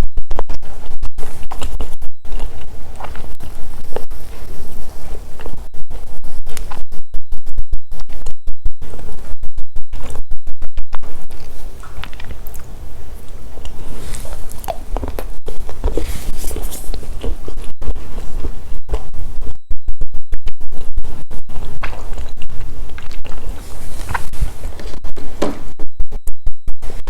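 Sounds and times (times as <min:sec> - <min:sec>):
microphone crackling and humming: 0:00.0 - 0:27.0
eating sounds: 0:00.6 - 0:06.9, 0:11.0 - 0:19.5, 0:20.7 - 0:25.3.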